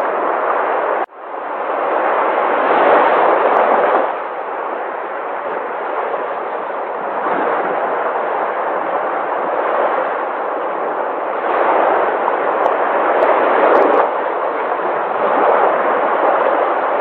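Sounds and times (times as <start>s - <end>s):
sea waves washing ashore: 0.0s - 17.0s.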